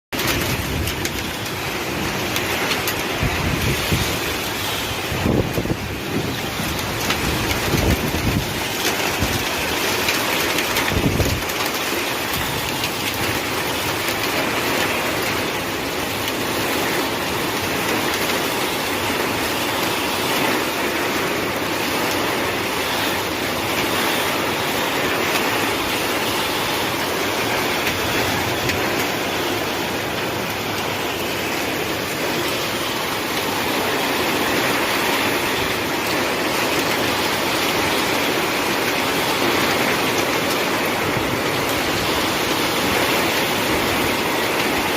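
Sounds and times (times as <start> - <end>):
heavy rain and hail: 0.1 - 44.9
wind buffeting microphone: 0.2 - 14.3.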